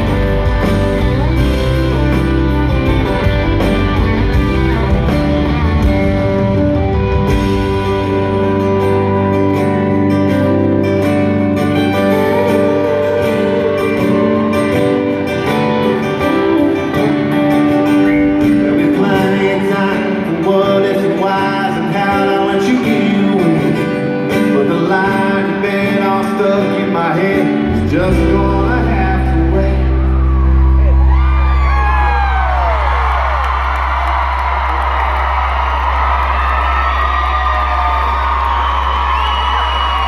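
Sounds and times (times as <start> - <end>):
heavy bass: 0.0 - 10.3
amplified guitars: 0.0 - 40.0
person singing: 11.9 - 30.4.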